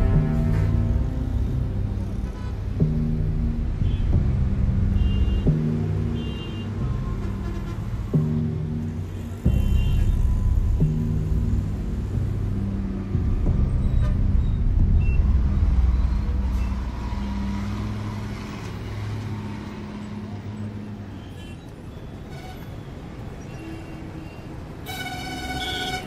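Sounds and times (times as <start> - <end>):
low rumble: 0.0 - 6.2, 6.8 - 18.8
horn-like tone: 23.5 - 26.0.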